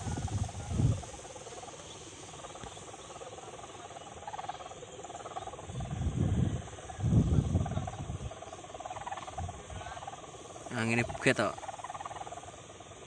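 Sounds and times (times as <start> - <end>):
wind buffeting microphone: 0.0 - 1.7, 5.5 - 8.5, 9.1 - 10.0, 11.0 - 11.3.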